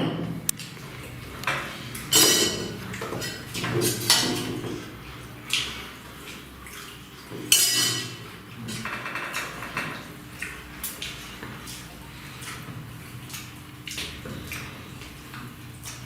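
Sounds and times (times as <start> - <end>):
scrapes and knocks on dishes: 1.5 - 4.9, 7.5 - 10.0.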